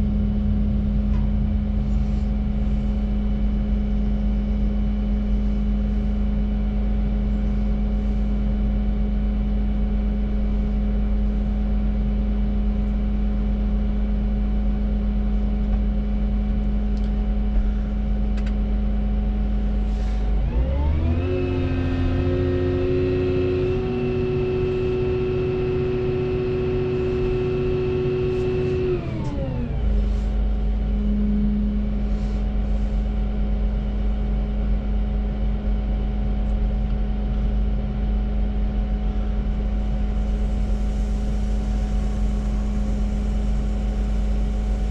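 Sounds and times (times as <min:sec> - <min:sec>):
excavator diesel engine revving: 0:00.0 - 0:03.9, 0:20.3 - 0:32.1, 0:39.6 - 0:44.9.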